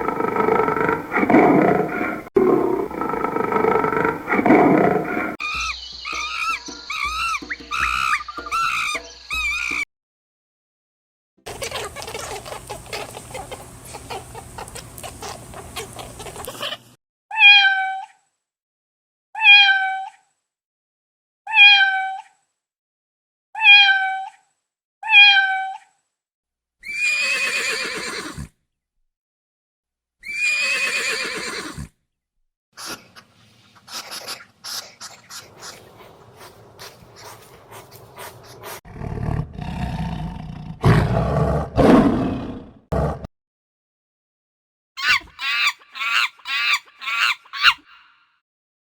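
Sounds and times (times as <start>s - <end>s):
cat meowing: 17.3s - 18.1s, 19.4s - 20.1s, 21.5s - 22.2s, 23.6s - 24.3s, 25.0s - 25.8s.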